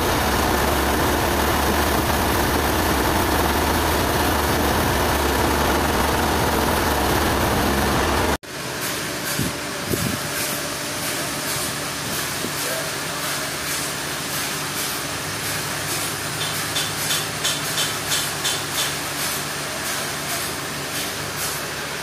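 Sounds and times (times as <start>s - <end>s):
heavy engine droning: 0.0s - 13.1s.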